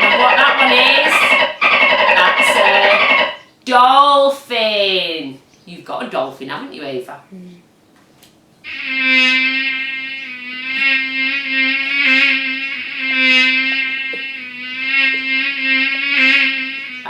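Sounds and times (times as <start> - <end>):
fly buzzing: 0.0 - 3.4, 8.7 - 17.0.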